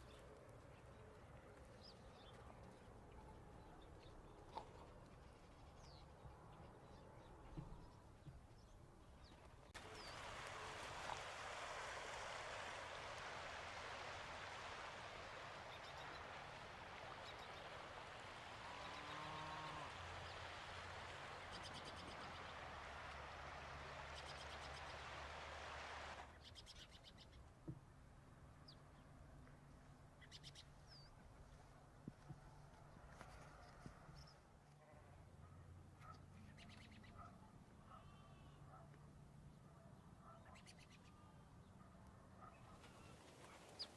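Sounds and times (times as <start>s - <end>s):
steady rushing hiss: 9.8s - 26.3s.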